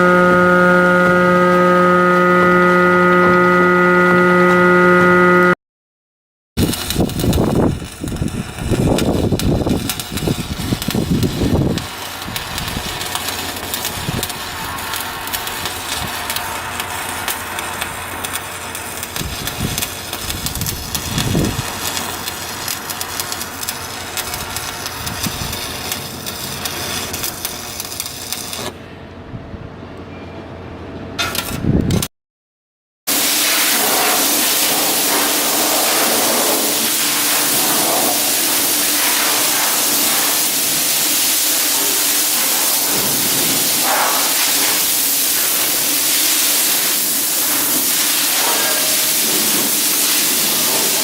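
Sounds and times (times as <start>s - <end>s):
machinery running: 6.6s - 29.0s, 33.1s - 51.0s.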